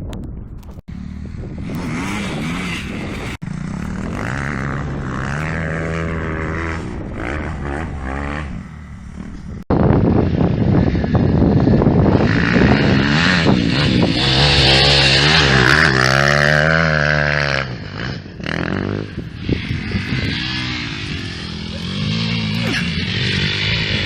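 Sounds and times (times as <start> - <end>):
motocross engine revving: 0.9 - 9.6, 10.4 - 24.0.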